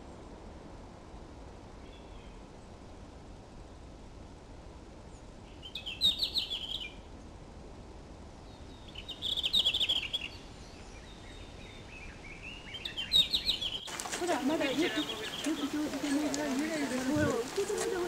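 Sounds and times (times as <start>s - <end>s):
faint steady hiss: 0.0s - 18.0s
songbird chirping: 1.6s - 2.8s, 5.0s - 7.4s, 8.4s - 18.0s.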